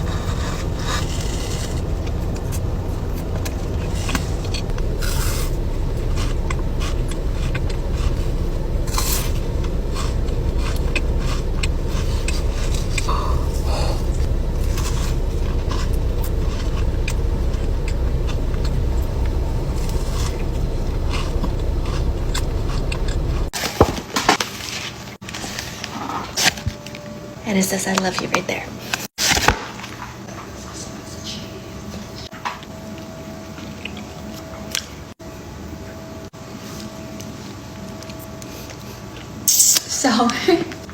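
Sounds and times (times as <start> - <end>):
car road noise rumble: 0.0 - 23.6.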